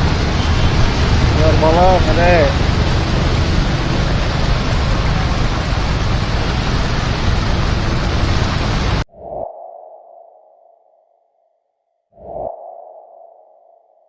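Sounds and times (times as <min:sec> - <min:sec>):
heavy rain: 0:00.0 - 0:09.1.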